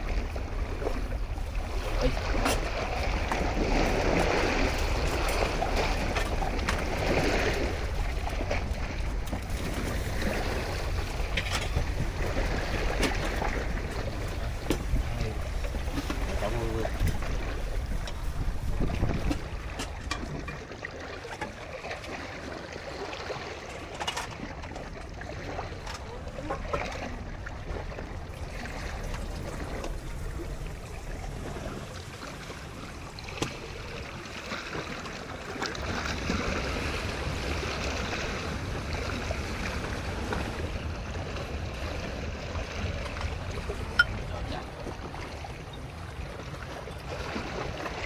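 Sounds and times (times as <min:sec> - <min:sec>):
water lapping around boat: 0:00.0 - 0:48.0.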